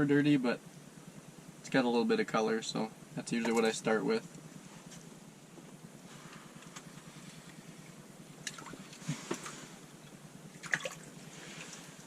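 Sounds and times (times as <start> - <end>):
water splashing and dripping: 10.6 - 11.1.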